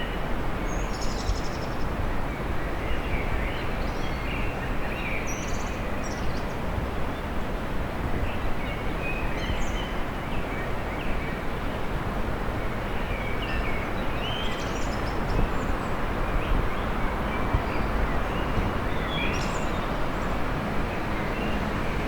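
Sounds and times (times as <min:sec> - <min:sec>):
city traffic rumble: 0:09.9 - 0:22.0.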